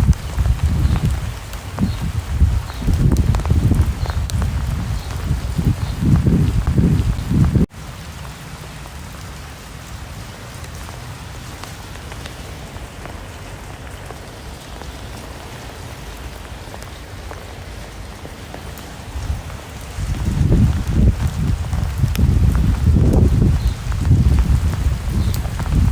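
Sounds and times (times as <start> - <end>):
gusty low rumble: 0.0 - 7.7, 19.2 - 25.9
steady rain falling: 0.0 - 25.9.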